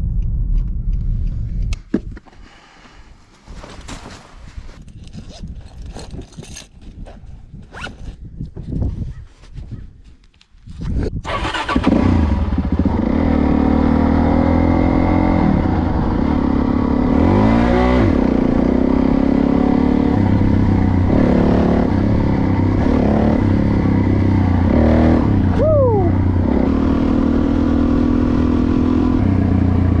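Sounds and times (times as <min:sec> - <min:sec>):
dirt bike engine revving: 0:11.3 - 0:29.8
high tone sliding down: 0:25.2 - 0:26.4.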